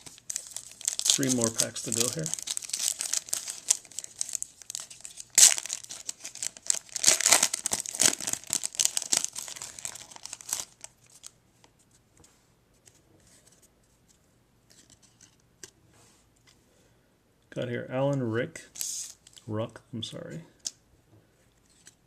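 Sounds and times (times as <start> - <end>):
card pack wrapper tearing: 0.0 - 11.3.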